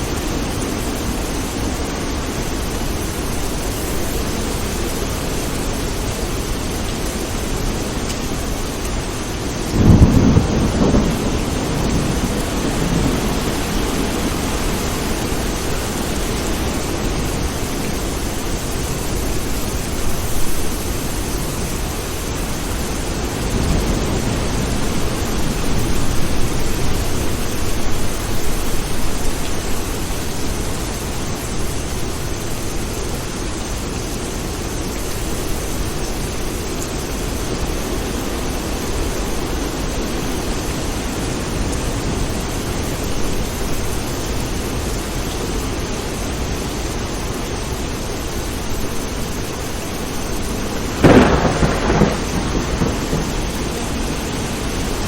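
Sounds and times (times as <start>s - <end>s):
steady rain: 0.0s - 55.0s
distant thunder rolling: 9.6s - 17.5s, 50.0s - 55.0s
thunderclap rumble: 9.6s - 21.3s, 22.8s - 29.8s, 49.0s - 55.0s.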